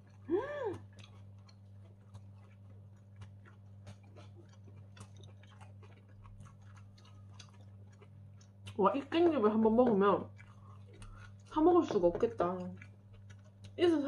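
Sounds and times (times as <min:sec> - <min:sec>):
low steady hum: 0:00.0 - 0:14.0
quiet chewing: 0:00.0 - 0:14.0
person humming: 0:00.3 - 0:00.9.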